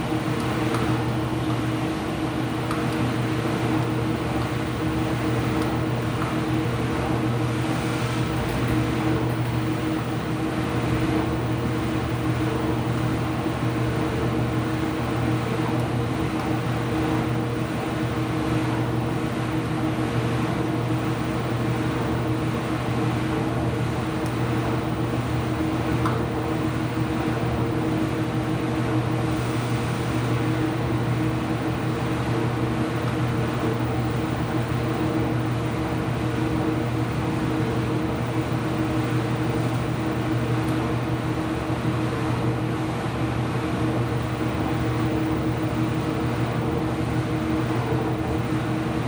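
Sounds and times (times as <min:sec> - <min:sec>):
washing machine motor hum: 0:00.0 - 0:49.0.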